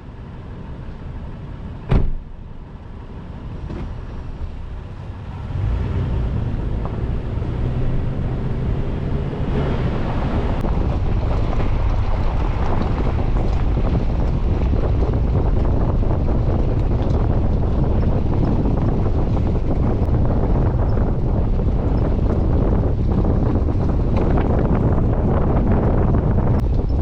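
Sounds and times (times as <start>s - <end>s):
tyre and road noise: 0.0s - 27.0s
vehicle engine rumble: 0.0s - 27.0s
sharp thump: 1.9s - 2.3s.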